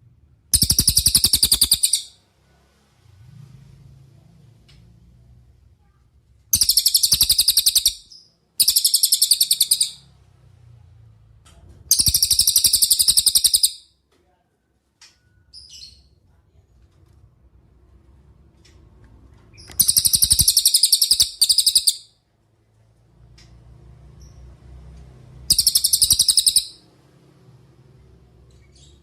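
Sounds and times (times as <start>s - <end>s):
bird high trills: 0.6s - 2.2s, 6.6s - 10.0s, 19.8s - 22.1s, 25.5s - 26.8s.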